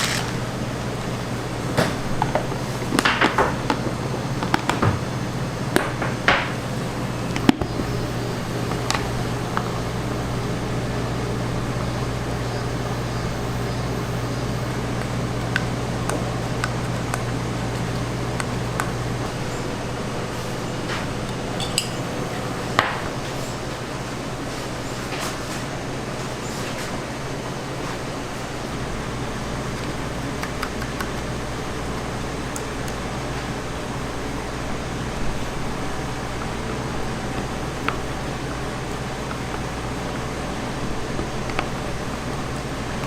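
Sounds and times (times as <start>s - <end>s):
utensils and dishes clinking: 0.0s - 0.5s, 20.6s - 23.7s
low machine hum: 0.0s - 43.0s.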